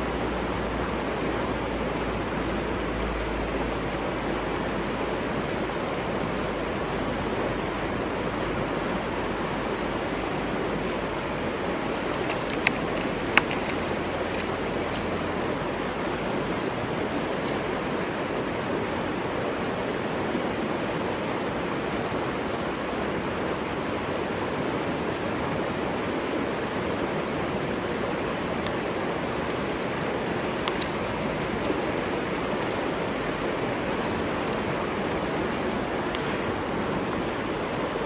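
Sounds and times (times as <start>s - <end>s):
river water flowing: 0.0s - 38.0s
faint sharp ticks: 28.5s - 37.6s.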